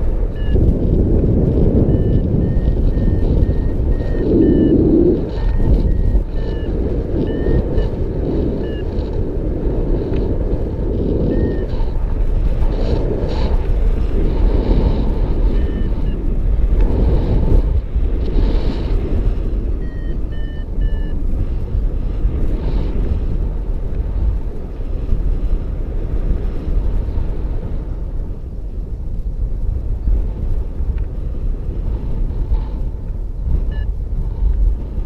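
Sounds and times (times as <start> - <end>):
wind rushing over microphone: 0.0 - 35.0
short electronic beeps: 0.3 - 0.7, 1.8 - 8.0, 8.6 - 9.0, 11.3 - 11.8, 15.5 - 16.2, 19.8 - 21.2, 33.6 - 33.9.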